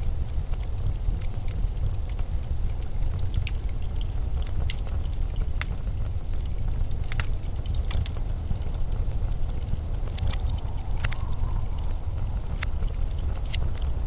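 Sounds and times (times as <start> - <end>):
blizzard wind rumble: 0.0 - 14.0
sharp crackles and ticks: 0.0 - 14.0.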